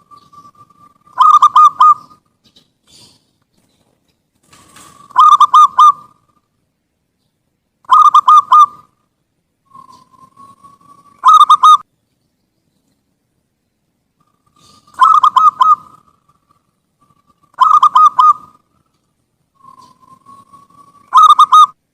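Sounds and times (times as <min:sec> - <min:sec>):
dove cooing: 0:00.0 - 0:02.2, 0:04.5 - 0:06.4, 0:07.9 - 0:09.0, 0:09.7 - 0:11.8, 0:14.2 - 0:18.9, 0:19.6 - 0:21.8.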